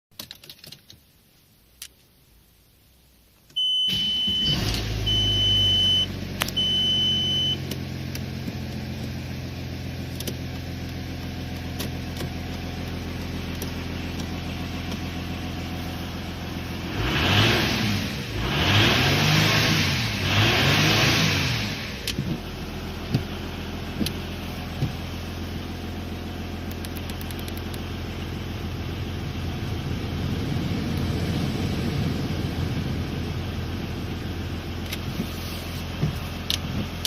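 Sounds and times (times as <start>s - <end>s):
long electronic beeps: 3.6s - 7.6s
diesel engine starting and idling: 3.6s - 37.0s.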